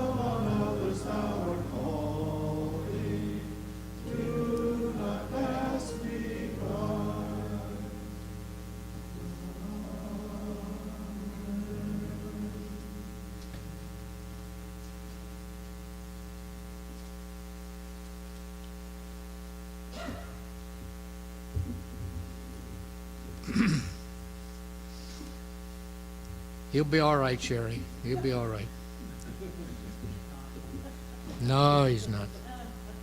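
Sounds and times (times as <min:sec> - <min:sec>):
hymn singing: 0:00.0 - 0:14.0
electrical mains hum: 0:00.0 - 0:33.0.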